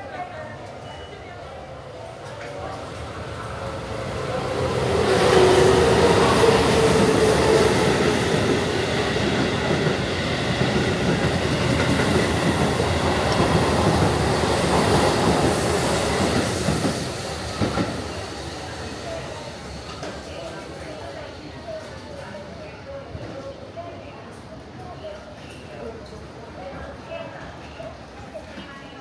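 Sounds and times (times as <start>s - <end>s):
train whine: 1.6s - 21.6s.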